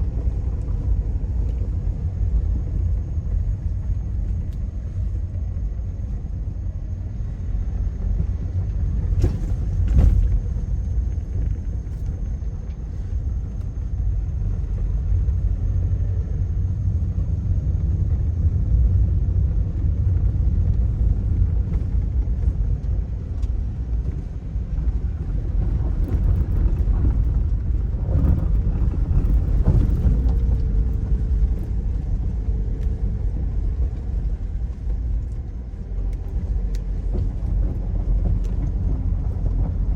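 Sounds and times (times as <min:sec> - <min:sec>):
vehicle rumbling on the move: 0:00.0 - 0:39.9.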